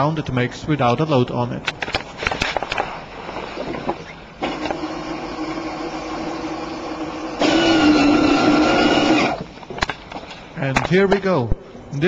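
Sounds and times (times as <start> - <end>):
toy train motor whirring: 4.4 - 9.4.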